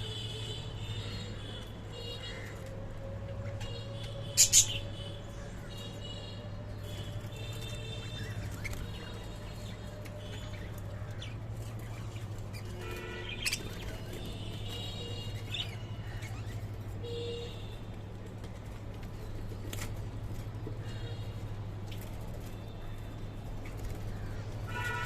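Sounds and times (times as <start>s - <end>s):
parrots chirping: 4.3s - 4.9s, 10.3s - 13.8s.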